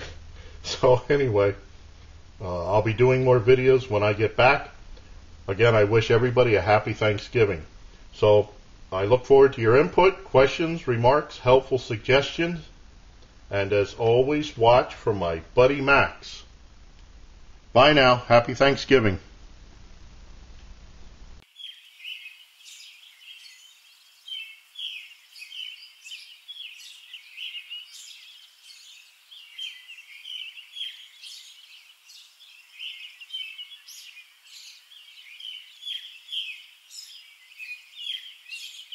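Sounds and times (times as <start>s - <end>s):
faint room hiss: 0.0s - 38.9s
songbirds chirping and singing: 21.4s - 38.9s.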